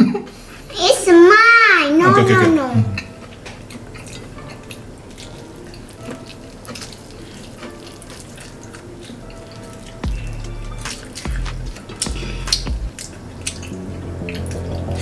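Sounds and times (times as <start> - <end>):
chewing food: 3.0 - 15.0
wet mouth clicks: 10.8 - 15.0.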